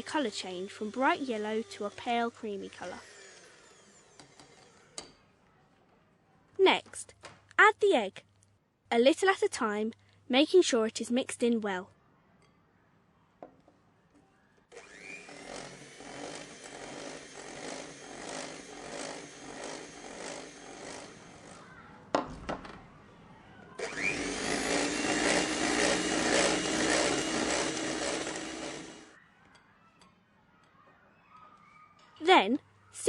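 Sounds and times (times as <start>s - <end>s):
electric hand mixer whirring: 0.0s - 4.9s, 14.7s - 21.6s, 23.8s - 29.2s.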